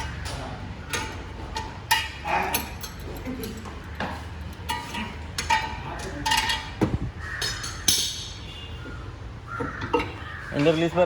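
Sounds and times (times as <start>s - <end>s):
metal tools clinking: 0.0s - 8.5s.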